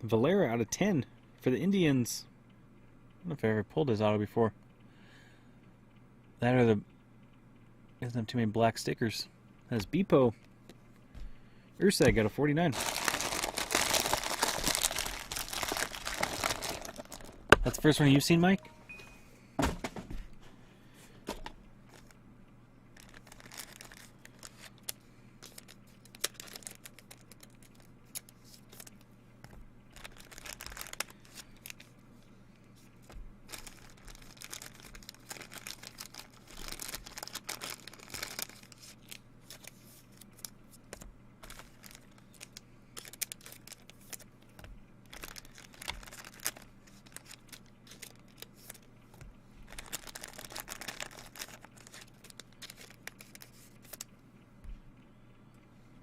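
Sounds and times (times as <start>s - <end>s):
faint low hum: 0.0s - 56.0s
card pack wrappers tearing and crinkling: 11.9s - 18.4s, 23.0s - 29.0s, 29.9s - 31.9s, 33.4s - 48.9s, 49.6s - 54.1s
cards being handled: 32.8s - 54.1s.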